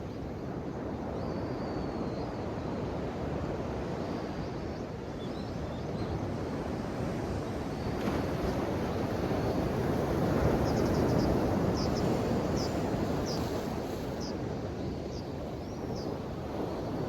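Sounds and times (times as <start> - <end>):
ocean waves washing ashore: 6.2 - 17.0.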